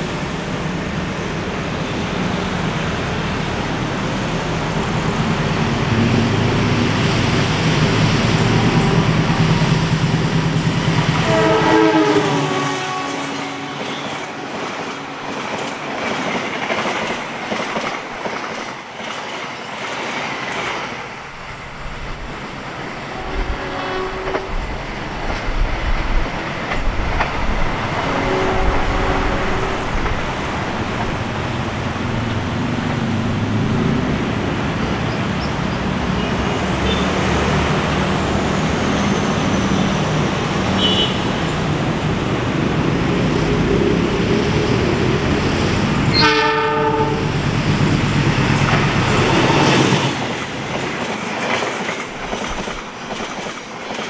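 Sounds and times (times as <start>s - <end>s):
train horn: 8.3s - 9.6s, 11.1s - 14.6s, 23.1s - 24.7s, 28.0s - 30.0s, 40.8s - 41.5s, 46.1s - 47.4s.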